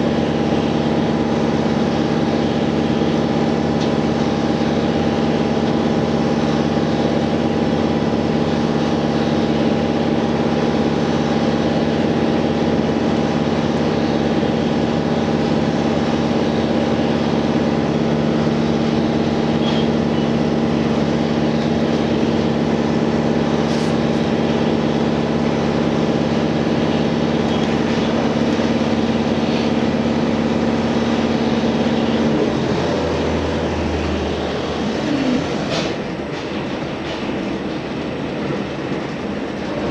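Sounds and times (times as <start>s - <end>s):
train diesel engine hum: 0.0s - 39.9s
train rolling: 0.0s - 39.9s.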